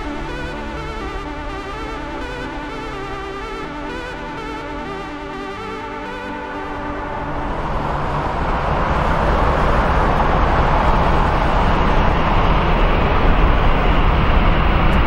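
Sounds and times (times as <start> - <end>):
jet airliner engines rumbling: 6.6 - 15.0.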